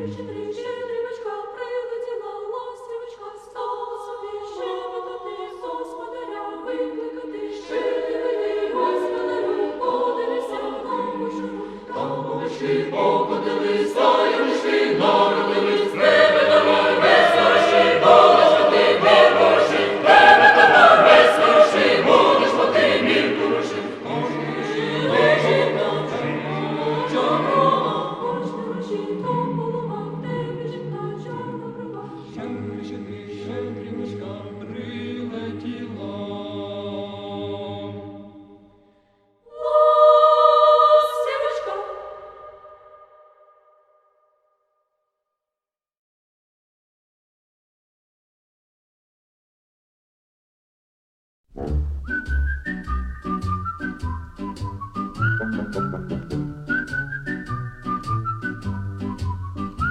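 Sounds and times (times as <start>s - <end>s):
choir singing: 0.0s - 38.7s, 39.5s - 43.3s, 55.4s - 56.5s
instrumental backing: 51.6s - 57.8s.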